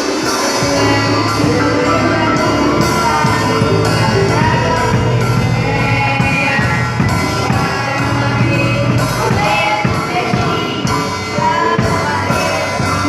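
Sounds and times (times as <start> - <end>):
band playing: 0.0 - 13.0
cymbal crashes: 0.0 - 13.0
sustained bass notes: 0.0 - 13.0.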